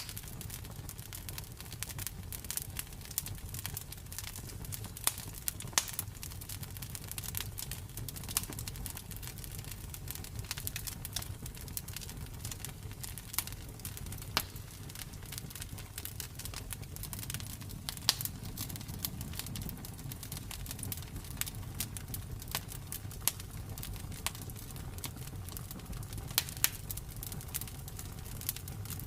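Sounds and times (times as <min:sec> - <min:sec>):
burning wood snapping and popping: 0:00.0 - 0:29.0
low rumble of flames: 0:00.0 - 0:29.0.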